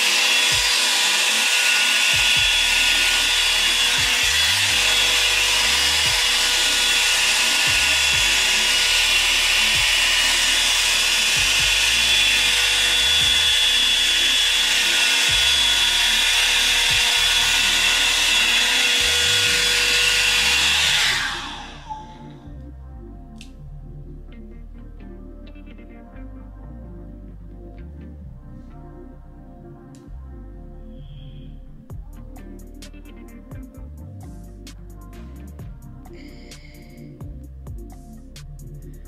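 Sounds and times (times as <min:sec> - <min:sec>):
hot air brush running: 0:00.0 - 0:22.3.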